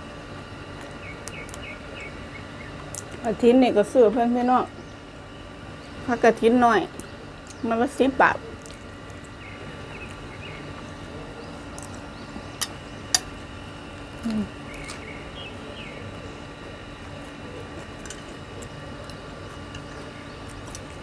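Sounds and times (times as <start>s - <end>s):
sharp crunches while eating: 8.5s - 21.0s
person humming: 14.2s - 14.6s.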